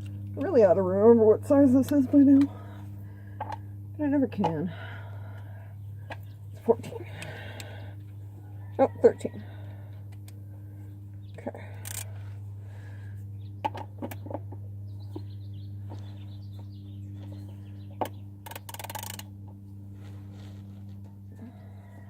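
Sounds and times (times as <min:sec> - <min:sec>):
low hum: 0:00.0 - 0:22.0
birds chirping: 0:12.7 - 0:18.8
socket wrench clicking: 0:18.4 - 0:19.3.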